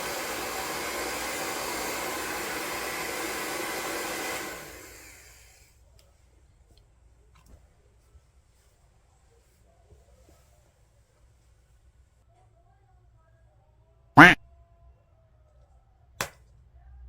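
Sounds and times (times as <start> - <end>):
hair dryer blowing: 0.0 - 5.7.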